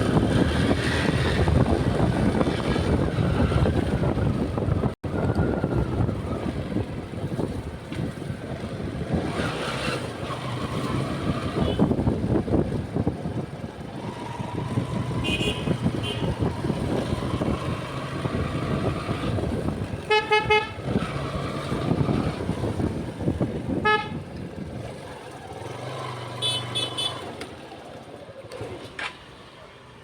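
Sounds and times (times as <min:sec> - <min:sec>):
traffic engine drone: 0:00.0 - 0:30.0
vehicle horns honking: 0:11.6 - 0:12.0, 0:15.2 - 0:16.5, 0:20.0 - 0:20.8, 0:23.7 - 0:24.3, 0:26.4 - 0:27.3.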